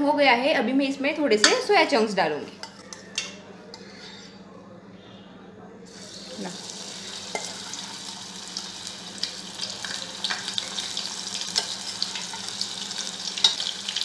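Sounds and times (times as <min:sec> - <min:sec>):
food frying in hot oil: 0:05.9 - 0:14.0.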